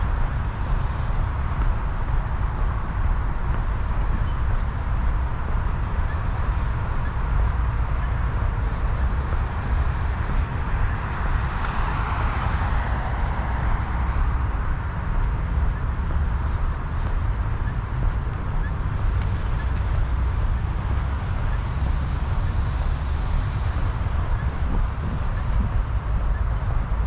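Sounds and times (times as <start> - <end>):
traffic noise: 0.0 - 27.0
wind rumble on microphone: 0.0 - 27.0
vehicle passing: 9.5 - 16.7.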